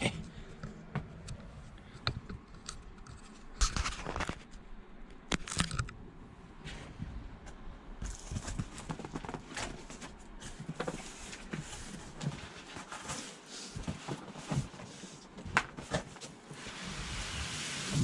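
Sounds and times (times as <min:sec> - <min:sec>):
packaging knocks and rustles: 0:08.1 - 0:16.4.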